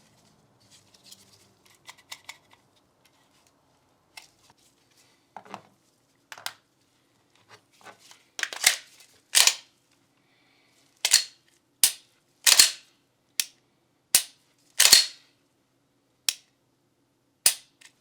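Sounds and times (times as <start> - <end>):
pistol metallic clicks: 9.4 - 9.6, 11.1 - 12.8, 14.2 - 15.2, 17.5 - 18.0.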